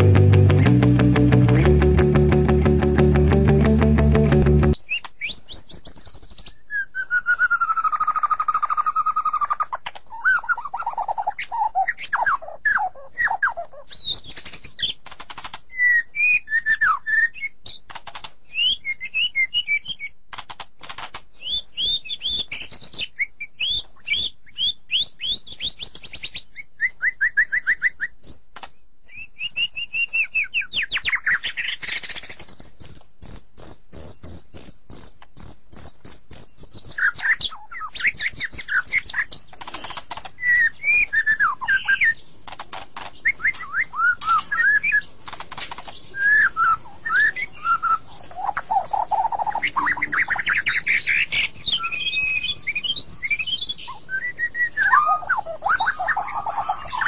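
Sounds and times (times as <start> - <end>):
songbirds chirping and whistling: 4.7 - 20.2, 21.1 - 57.0
small clicks: 14.3 - 15.7, 17.9 - 18.4, 20.3 - 21.3, 38.4 - 40.6, 42.4 - 46.1.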